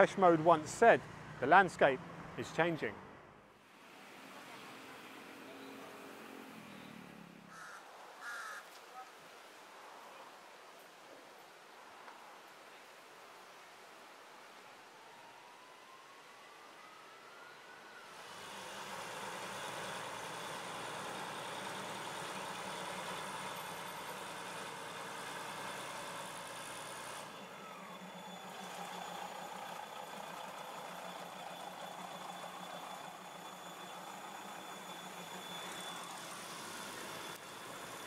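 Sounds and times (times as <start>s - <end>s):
diesel train engine running: 18.2s - 38.0s.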